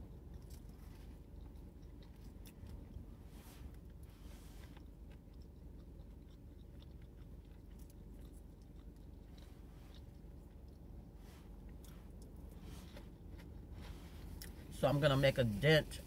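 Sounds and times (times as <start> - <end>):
person chewing food: 0.0 - 14.8
low steady rumble: 0.0 - 16.0.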